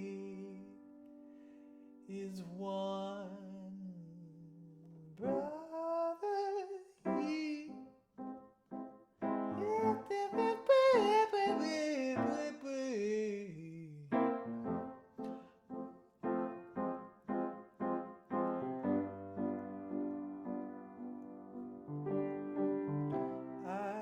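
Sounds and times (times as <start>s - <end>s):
keyboard repeated chords: 5.2s - 5.5s, 7.1s - 12.6s, 14.1s - 24.0s.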